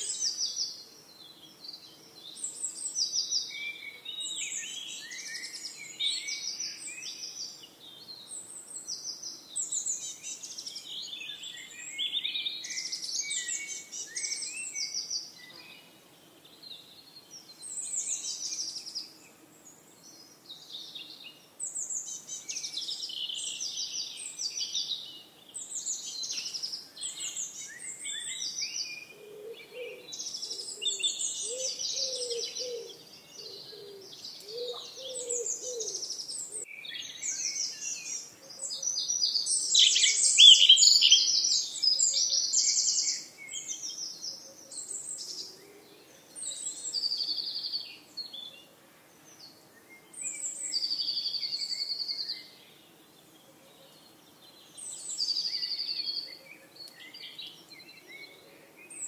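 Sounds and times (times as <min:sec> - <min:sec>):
songbirds singing and chirping: 0:00.0 - 0:59.0
lower bird call: 0:27.0 - 0:43.6.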